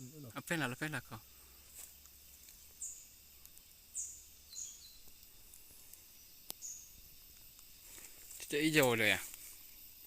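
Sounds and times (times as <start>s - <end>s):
faint high bird chirps: 0.0s - 7.9s.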